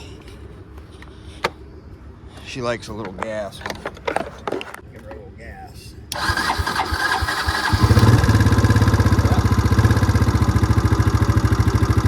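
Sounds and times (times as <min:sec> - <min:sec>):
quad engine cranking and idling: 0:06.1 - 0:12.0.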